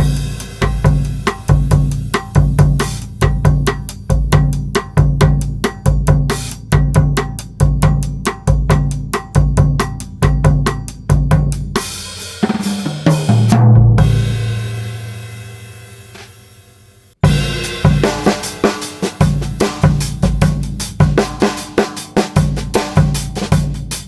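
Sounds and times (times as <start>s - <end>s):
cymbal crash: 0.0s - 3.6s, 14.0s - 20.2s
drum fill on toms: 0.0s - 16.3s, 17.2s - 24.0s
drum kit groove: 0.0s - 24.0s.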